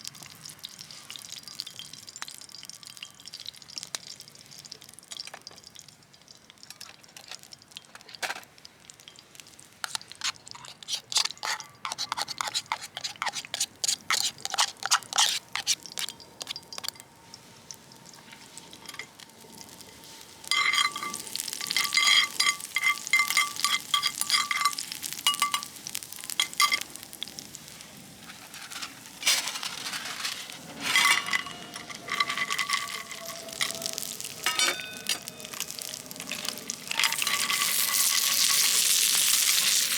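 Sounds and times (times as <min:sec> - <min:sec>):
food sizzling in a pan: 0:00.0 - 0:39.9
metal utensil scraping pan: 0:09.8 - 0:17.0, 0:20.0 - 0:27.0, 0:28.2 - 0:39.9.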